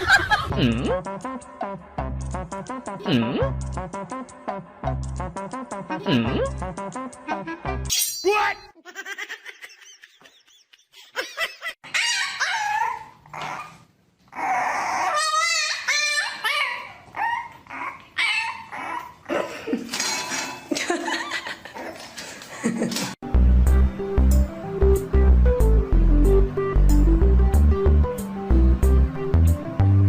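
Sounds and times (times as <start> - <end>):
people laughing: 0.0 - 1.0
dog yipping and whining: 11.8 - 19.3.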